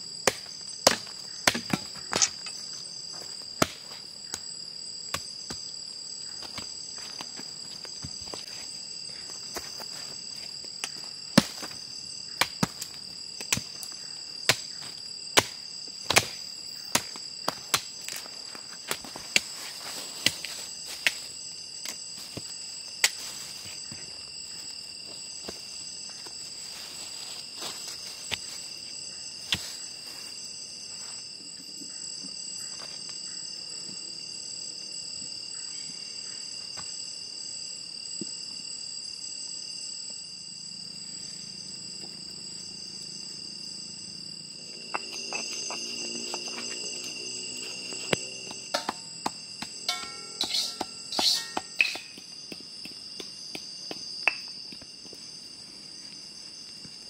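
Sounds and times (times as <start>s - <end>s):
crickets chirring: 0.0s - 57.0s
sharp knocks: 48.5s - 52.2s.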